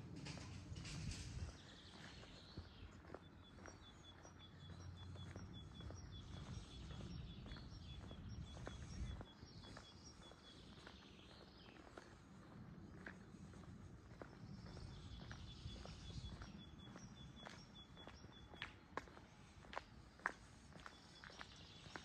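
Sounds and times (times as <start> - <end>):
faint footsteps on pavement: 0.0 - 22.0
small bird chirping: 1.5 - 12.0, 14.2 - 18.7, 20.7 - 22.0.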